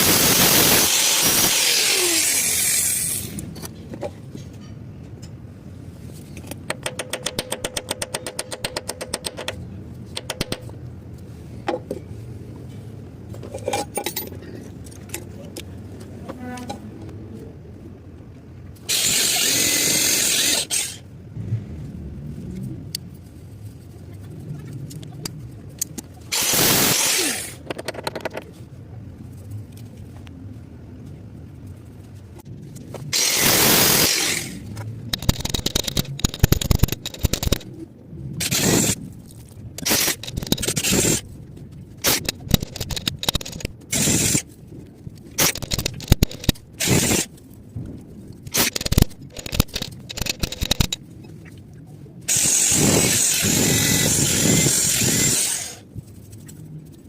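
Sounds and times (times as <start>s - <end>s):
short scrapes and clicks: 32.7s - 37.8s, 38.4s - 41.3s, 42.0s - 47.5s, 48.4s - 51.0s.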